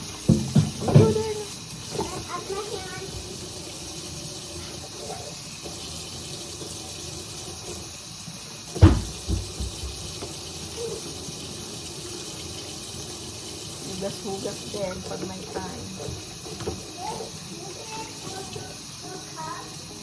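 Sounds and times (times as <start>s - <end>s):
tap running into sink: 0.0s - 4.0s, 8.7s - 19.6s
knocks: 8.8s - 10.0s.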